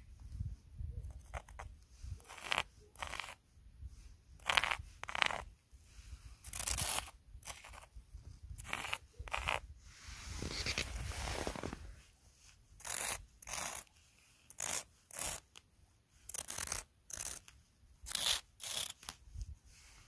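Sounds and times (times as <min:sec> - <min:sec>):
footsteps crunching in snow: 0:10.0 - 0:12.0.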